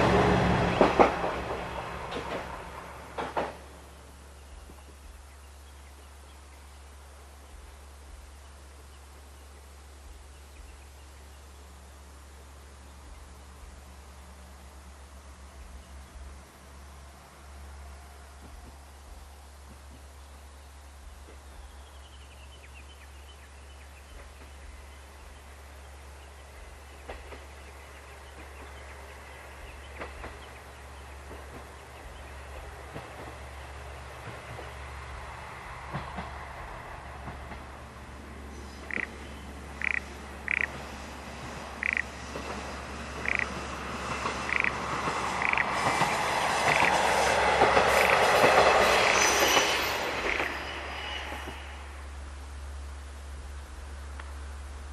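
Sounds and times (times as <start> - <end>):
wheels clacking over rail joint: 0.0 - 3.8, 41.8 - 51.7
diesel railcar passing: 0.0 - 54.9.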